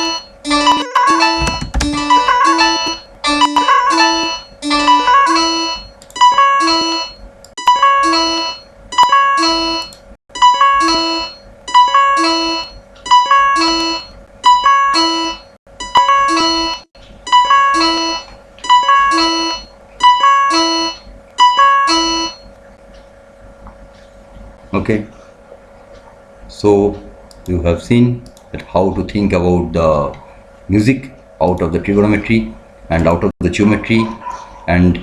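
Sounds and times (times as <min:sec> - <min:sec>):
synthesized piano-like melody: 0:00.0 - 0:22.6.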